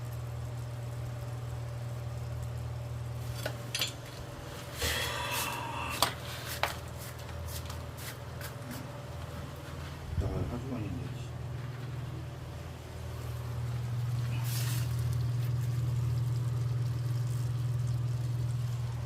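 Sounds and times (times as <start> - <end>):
low machine hum: 0.0 - 19.0
metal parts clinking and knocking: 3.4 - 4.2.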